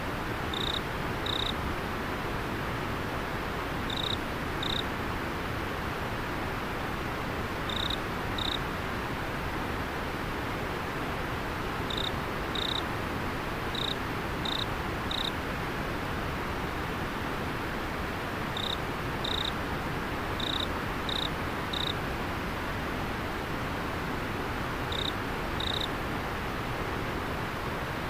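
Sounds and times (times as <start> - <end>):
cricket chirping: 0.5 - 1.6, 3.9 - 4.9, 7.7 - 8.6, 11.9 - 12.8, 13.7 - 15.3, 18.6 - 19.6, 20.4 - 22.0, 24.9 - 25.9.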